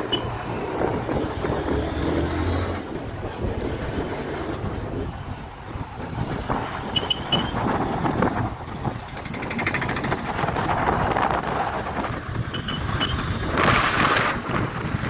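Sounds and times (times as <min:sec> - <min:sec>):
wind noise on microphone: 0:00.0 - 0:15.0
motorcycle engine running: 0:02.9 - 0:11.3.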